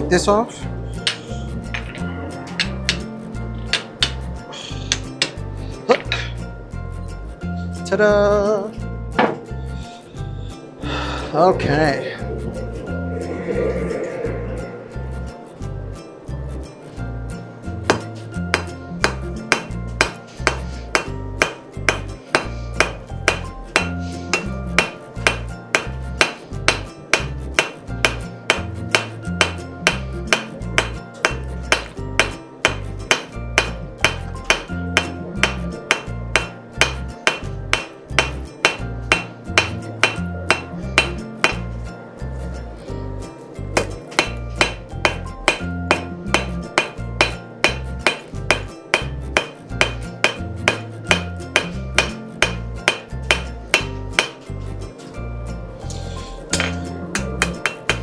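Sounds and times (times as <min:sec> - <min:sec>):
hammer striking steel on anvil: 0:02.6 - 0:03.1, 0:03.7 - 0:04.2, 0:17.9 - 0:41.8, 0:43.8 - 0:54.5, 0:55.9 - 0:58.0.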